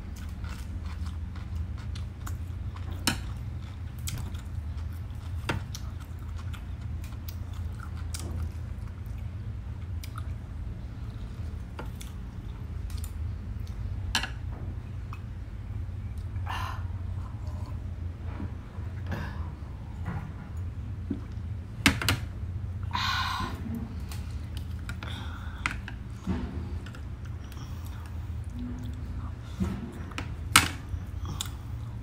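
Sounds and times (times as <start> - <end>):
chewing crunchy food: 0.0 - 13.9
steady low hum: 0.0 - 32.0.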